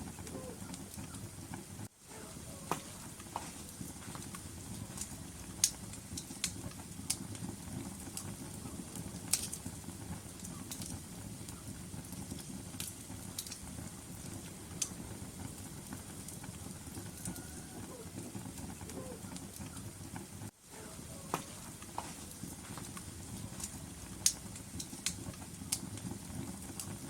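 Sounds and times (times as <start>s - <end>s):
fire rumbling: 0.0s - 27.0s
wood fire crackling and popping: 0.0s - 27.0s.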